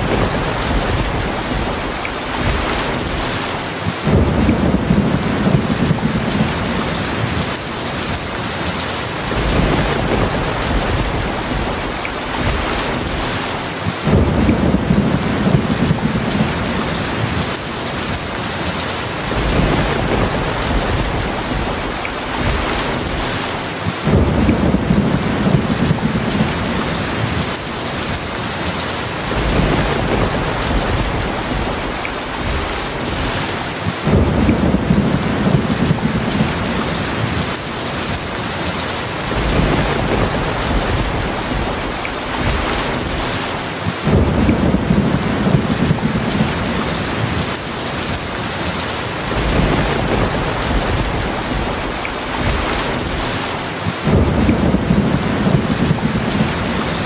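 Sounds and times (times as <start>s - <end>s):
heavy rain: 0.0s - 57.0s
thunder rumbling: 0.0s - 57.0s.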